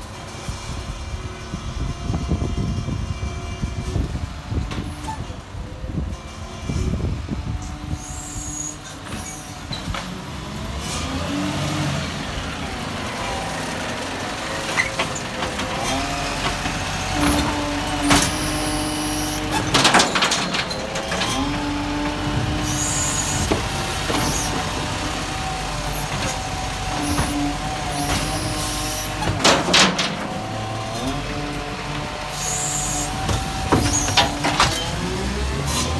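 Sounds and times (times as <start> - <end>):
garbage truck engine running: 0.0 - 35.9
hydraulic whine: 6.7 - 35.9
loud clunks: 14.7 - 32.1, 32.7 - 35.1.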